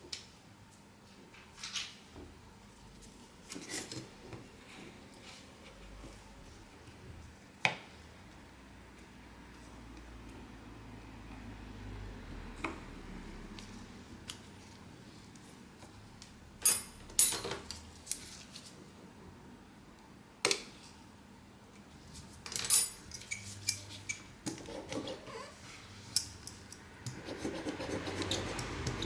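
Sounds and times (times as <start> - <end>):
small tools clicking and tapping: 26.1 - 29.0.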